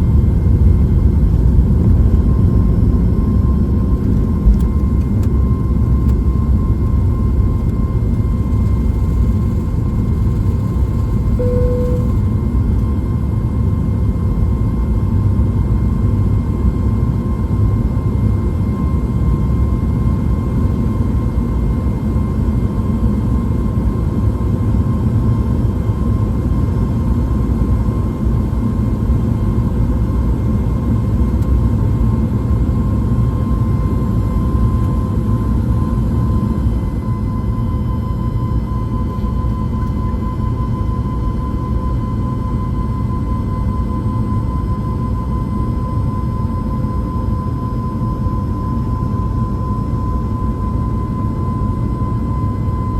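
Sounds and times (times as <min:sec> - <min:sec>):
jet engine rumble and whine: 0:00.0 - 0:52.9
short beep: 0:11.4 - 0:12.3.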